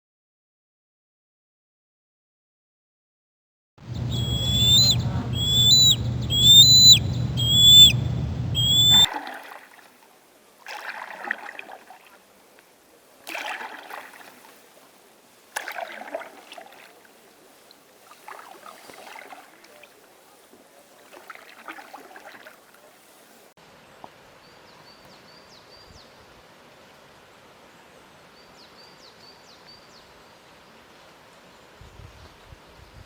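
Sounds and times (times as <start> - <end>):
steady outdoor hiss: 3.8 - 33.0
small bird chirping: 3.9 - 9.1
water splashing and sloshing: 7.0 - 23.5.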